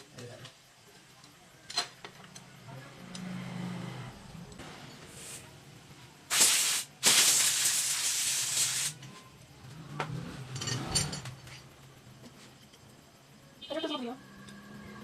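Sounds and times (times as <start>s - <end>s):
pressurised spray hissing: 6.3s - 9.0s.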